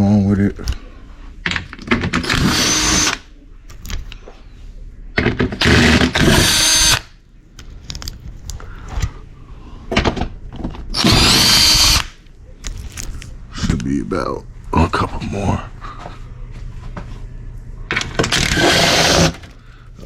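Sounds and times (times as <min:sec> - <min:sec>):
cordless power tool whining: 0:02.2 - 0:03.2, 0:05.6 - 0:07.0, 0:11.0 - 0:12.1, 0:18.3 - 0:19.5.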